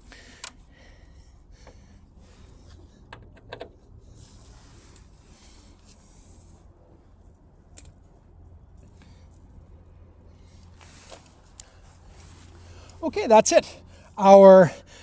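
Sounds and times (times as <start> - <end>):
low steady hum: 0.0 - 15.0
soft rustle: 3.9 - 13.1.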